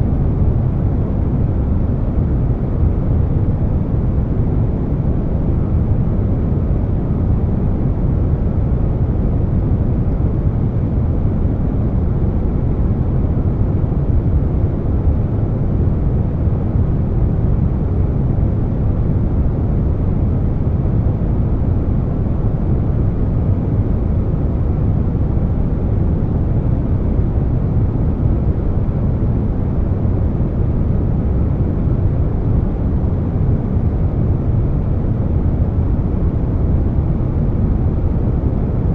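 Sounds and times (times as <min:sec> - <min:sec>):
air conditioner hiss: 0:00.0 - 0:38.9.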